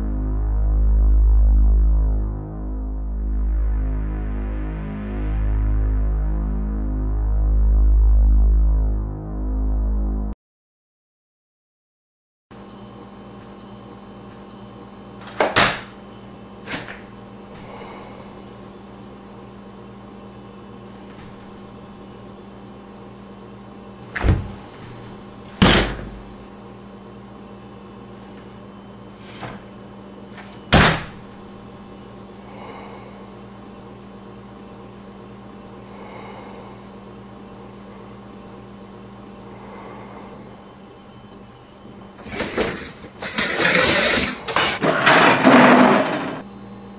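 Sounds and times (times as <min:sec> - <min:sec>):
steady electrical hum: 0:00.0 - 0:10.0, 0:12.6 - 0:46.9
wooden door banging in frame: 0:25.6 - 0:26.2, 0:30.7 - 0:31.2.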